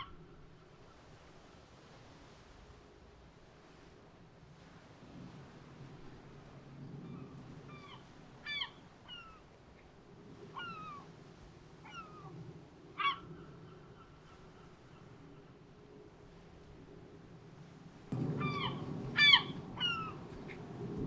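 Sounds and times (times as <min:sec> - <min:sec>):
faint low hum: 0:18.1 - 0:21.0
gulls mewing calls: 0:18.1 - 0:21.0.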